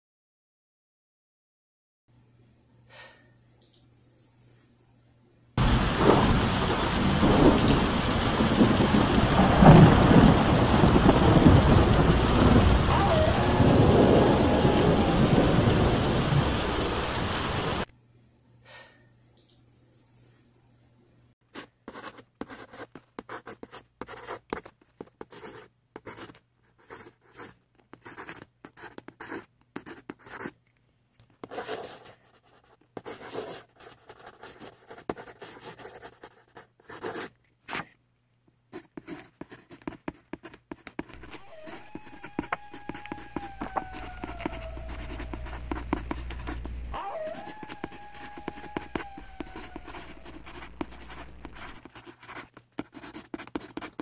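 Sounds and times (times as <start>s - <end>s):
pencil shading on paper: 21.6s - 30.5s, 31.4s - 37.9s, 38.7s - 54.0s
low hum: 43.4s - 47.0s.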